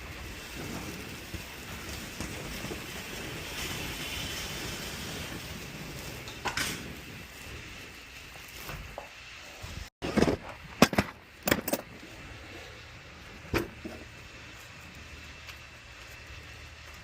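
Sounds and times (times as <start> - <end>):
sharp knocks and clatters: 10.0 - 11.9.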